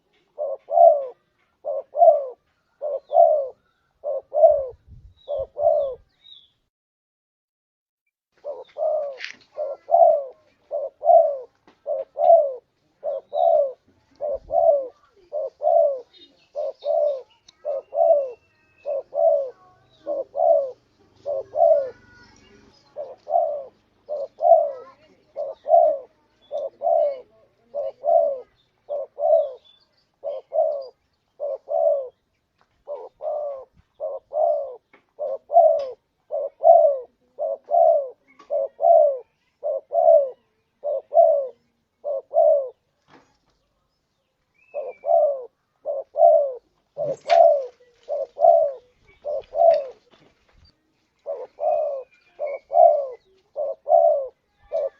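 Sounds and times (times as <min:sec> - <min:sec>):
dove cooing: 0:00.0 - 0:06.1, 0:08.4 - 0:42.9, 0:44.6 - 0:50.2, 0:51.2 - 0:54.9.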